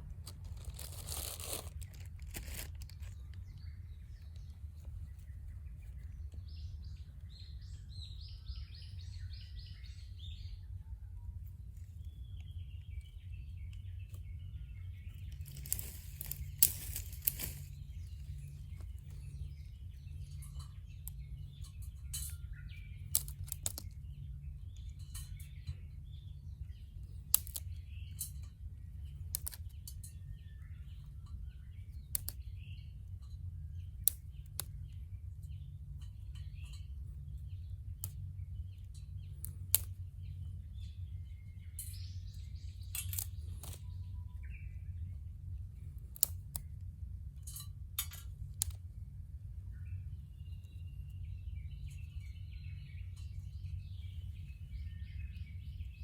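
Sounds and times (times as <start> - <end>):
birds chirping: 0.0 - 56.0
wood fire crackling and popping: 15.4 - 17.7, 27.3 - 27.7, 39.4 - 39.9.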